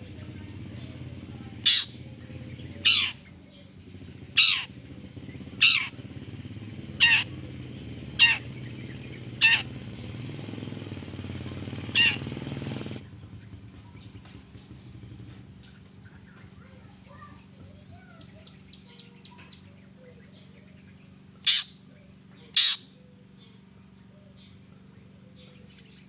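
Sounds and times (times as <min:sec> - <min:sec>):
shrike harsh screechy calls: 0:01.6 - 0:02.0, 0:02.8 - 0:03.3, 0:04.3 - 0:04.8, 0:05.4 - 0:06.1, 0:06.8 - 0:10.3, 0:11.9 - 0:12.4, 0:21.4 - 0:21.8, 0:22.4 - 0:23.0.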